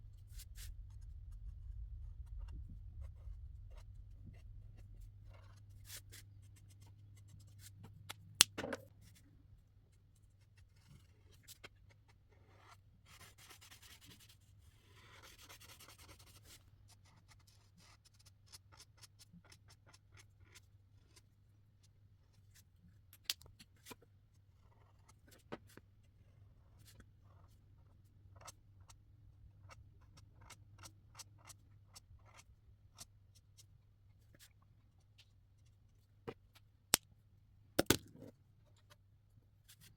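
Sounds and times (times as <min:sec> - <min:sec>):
faint low hum: 0:00.0 - 0:08.0
marker scratching on paper: 0:12.5 - 0:21.2.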